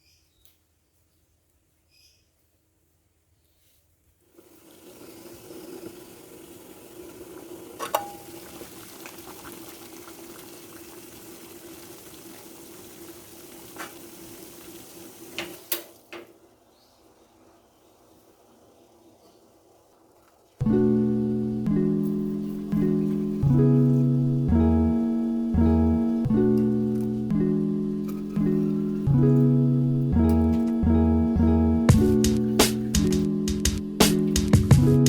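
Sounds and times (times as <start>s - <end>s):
water running into container: 4.3s - 16.1s.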